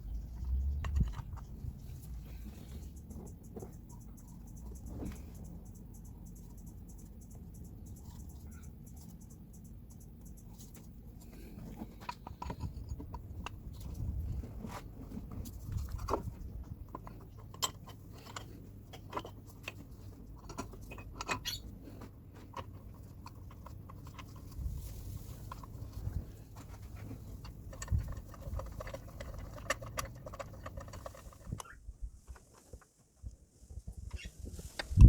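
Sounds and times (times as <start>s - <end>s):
low steady rumble: 0.0s - 32.3s
hand tools clicking and knocking: 11.2s - 24.6s.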